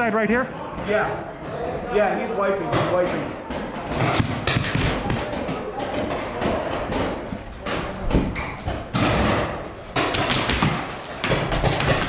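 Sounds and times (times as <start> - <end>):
balls smacking walls: 2.7 - 12.0.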